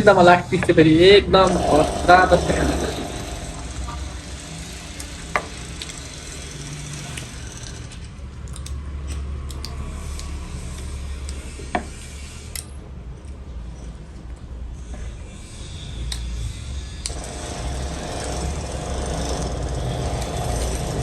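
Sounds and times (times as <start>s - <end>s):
steady low rumble: 0.0s - 21.0s
sharp clicks: 7.1s - 13.4s.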